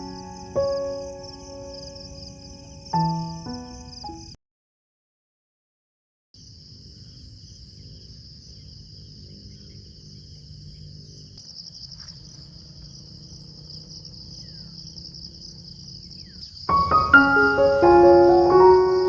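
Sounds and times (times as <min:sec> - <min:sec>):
insects trilling: 0:00.0 - 0:04.3, 0:06.4 - 0:19.0
faint bird chirps: 0:11.9 - 0:17.9.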